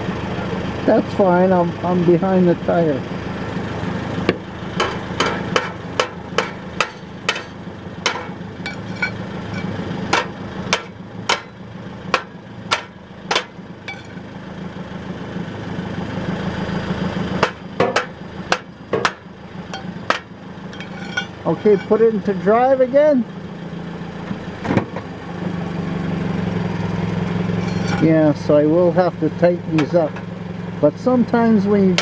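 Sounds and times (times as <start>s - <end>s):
car engine idling: 0.0s - 32.0s
metallic knocks on heat shield: 4.3s - 11.6s, 12.2s - 14.2s, 17.4s - 19.2s, 19.8s - 21.9s.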